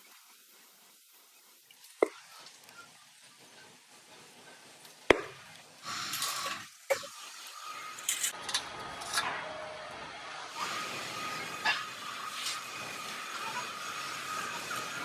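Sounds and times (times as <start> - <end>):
sharp knocks: 5.1 - 5.4
scraping and hissing: 5.1 - 8.5, 10.5 - 15.0.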